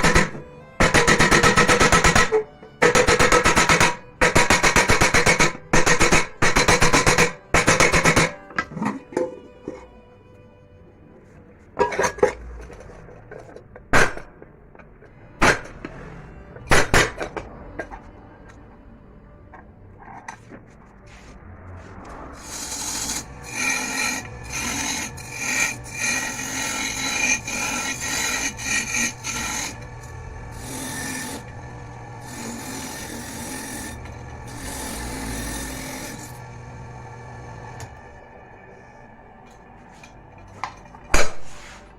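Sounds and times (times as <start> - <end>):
sharp knocks: 0.0 - 8.4
file rasping on metal: 0.0 - 8.9, 22.4 - 37.5.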